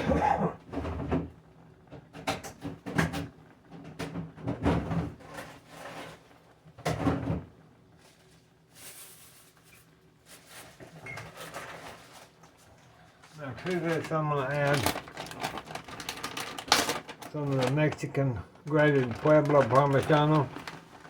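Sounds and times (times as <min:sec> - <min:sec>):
kitchen knocks and clatters: 0:00.0 - 0:06.2, 0:06.8 - 0:07.5.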